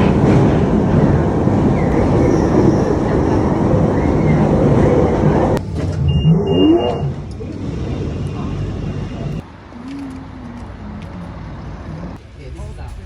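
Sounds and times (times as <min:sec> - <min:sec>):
vehicle rumbling: 0:00.0 - 0:13.0
short high beeping tone: 0:06.1 - 0:07.1.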